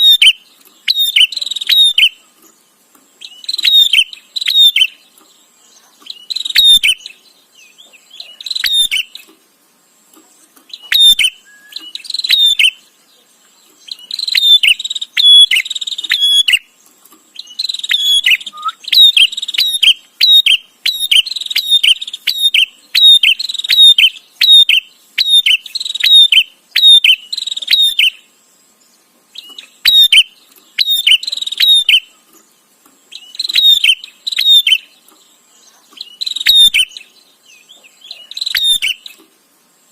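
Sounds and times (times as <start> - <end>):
bird chattering: 0.0 - 2.3, 3.2 - 5.2, 5.8 - 7.2, 7.8 - 9.3, 10.6 - 12.9, 13.8 - 16.7, 17.4 - 28.2, 29.4 - 32.2, 33.1 - 39.2.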